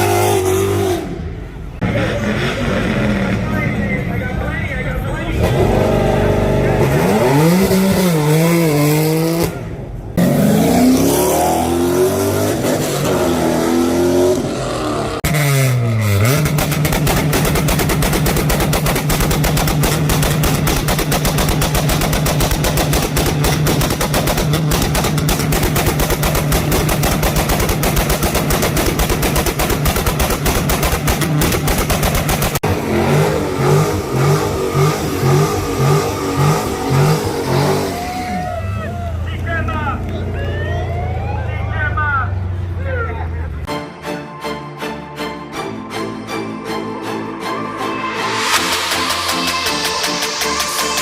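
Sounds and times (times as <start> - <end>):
car engine revving: 0.0 - 43.7, 47.2 - 51.0
exhaust popping and banging: 15.2 - 37.3.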